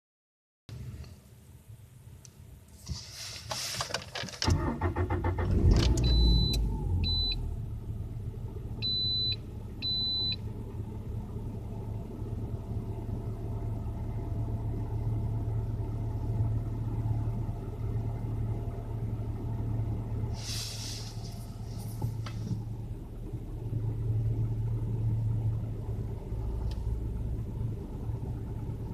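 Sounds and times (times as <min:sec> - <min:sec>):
car engine starting and idling: 0:00.7 - 0:28.9
short high car beeps: 0:06.0 - 0:07.5, 0:08.8 - 0:10.4.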